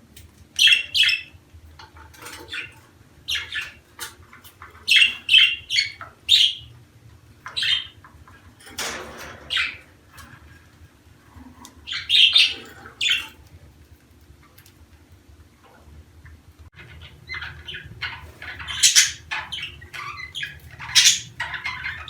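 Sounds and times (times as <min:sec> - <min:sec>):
budgerigars chirping: 0:00.6 - 0:01.3, 0:02.5 - 0:03.8, 0:04.8 - 0:06.7, 0:07.5 - 0:08.0, 0:09.5 - 0:09.9, 0:11.9 - 0:13.3, 0:16.8 - 0:22.0
harsh bird squawk: 0:16.9 - 0:22.0.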